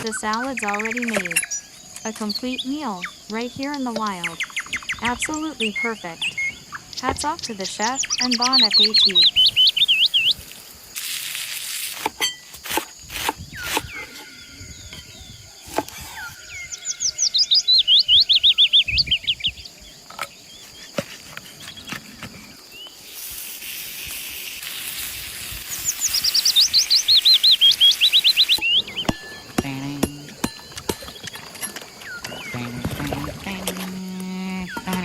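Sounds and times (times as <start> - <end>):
songbird trilling: 0.0 - 10.4, 13.6 - 20.8, 25.7 - 35.0
steady hiss: 10.3 - 12.2, 22.0 - 28.4.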